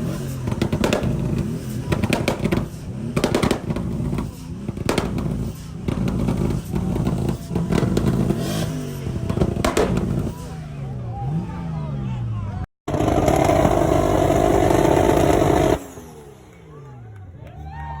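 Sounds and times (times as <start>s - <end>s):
exhaust pops: 0.0s - 10.4s, 12.9s - 16.7s
car engines revving: 0.0s - 18.0s.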